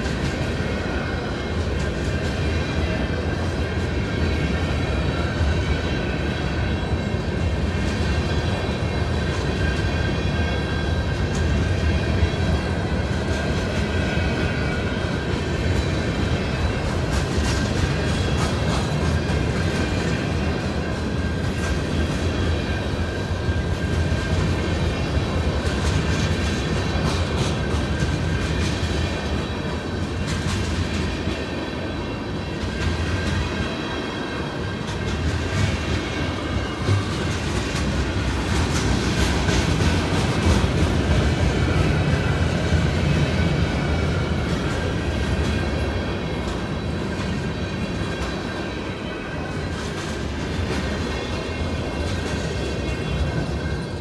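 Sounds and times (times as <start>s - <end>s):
steel wheels rumbling on rail: 0.0s - 54.0s
wheels clicking over rail joints: 15.3s - 31.4s.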